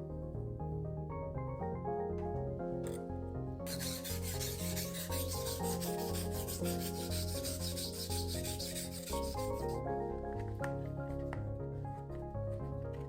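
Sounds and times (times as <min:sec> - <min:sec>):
background music: 0:00.0 - 0:13.0
knife scraping on whetstone: 0:03.7 - 0:09.8.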